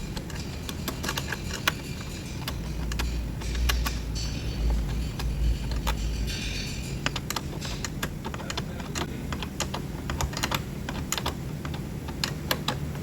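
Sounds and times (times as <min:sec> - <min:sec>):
ratchet wrench clicking: 0:00.0 - 0:11.4.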